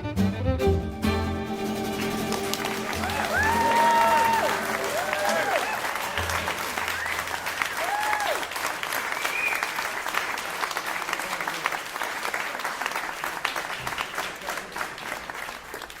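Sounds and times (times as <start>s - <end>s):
audience applauding: 1.8s - 16.0s
audience cheer: 2.4s - 12.9s.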